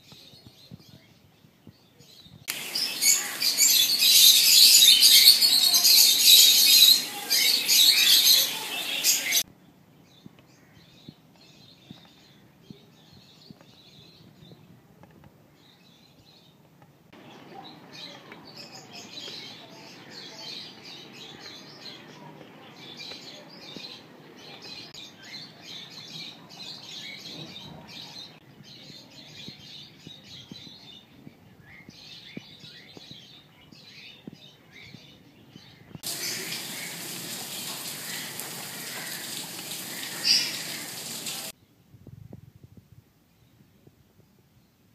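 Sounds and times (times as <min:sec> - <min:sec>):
small birds chirping: 0:00.0 - 0:41.7
rain falling on leaves: 0:02.5 - 0:09.4, 0:36.0 - 0:41.5.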